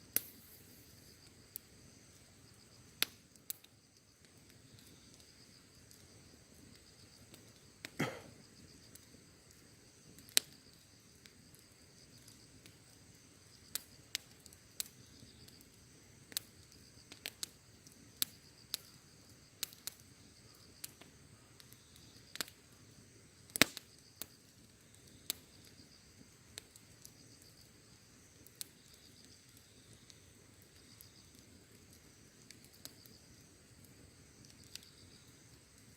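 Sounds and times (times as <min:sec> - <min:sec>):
campfire crackling and popping: 0:00.0 - 0:35.9
high insect trill: 0:32.0 - 0:35.9.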